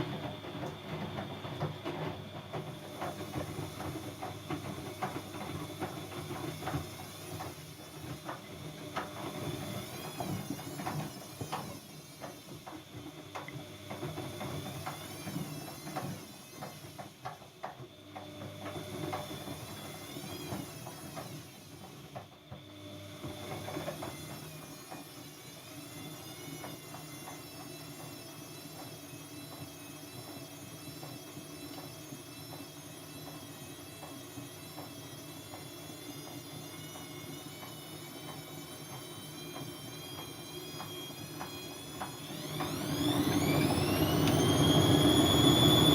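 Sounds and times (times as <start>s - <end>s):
washing machine motor whine: 0.0s - 45.9s.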